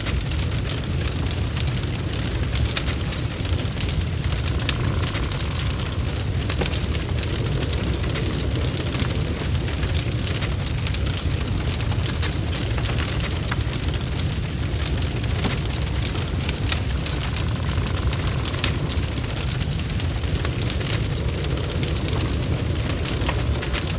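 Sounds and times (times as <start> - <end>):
bonfire crackling and popping: 0.0 - 23.9
low rumble of flames: 0.0 - 23.9.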